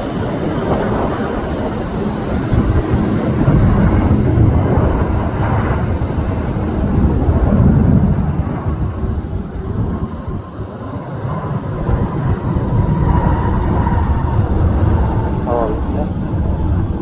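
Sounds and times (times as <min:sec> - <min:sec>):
jet engines rumbling: 0:00.0 - 0:17.0
wind buffeting microphone: 0:00.0 - 0:17.0.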